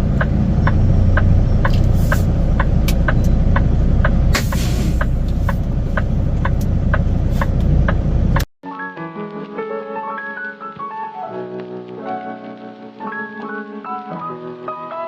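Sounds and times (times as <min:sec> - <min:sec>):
truck diesel engine running: 0:00.0 - 0:08.5
short air hisses: 0:01.9 - 0:02.3, 0:04.3 - 0:05.2.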